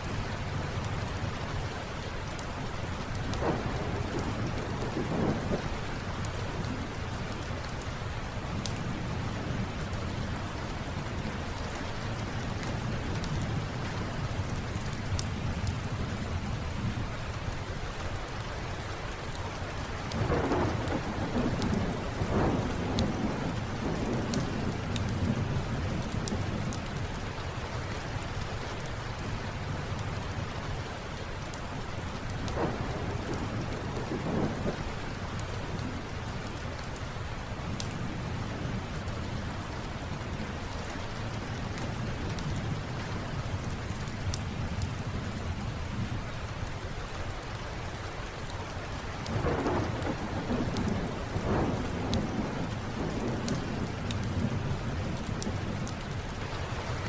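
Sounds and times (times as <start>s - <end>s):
steady rain: 0.0s - 57.0s
thunder rolling: 3.4s - 5.8s, 20.2s - 25.6s, 32.6s - 34.8s, 49.3s - 55.8s.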